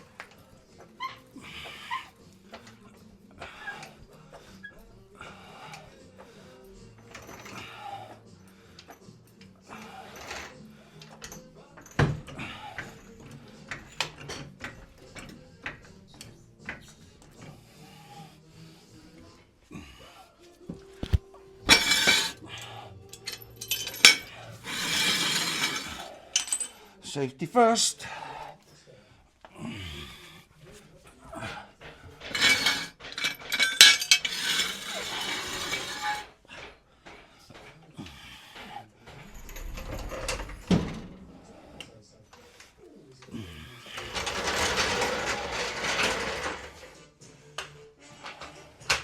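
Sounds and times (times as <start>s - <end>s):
tools and metal parts clicking: 6.9s - 7.8s, 8.8s - 17.4s, 21.0s - 26.8s, 32.2s - 36.8s
metallic clinking and clattering: 21.0s - 26.8s, 32.2s - 36.7s.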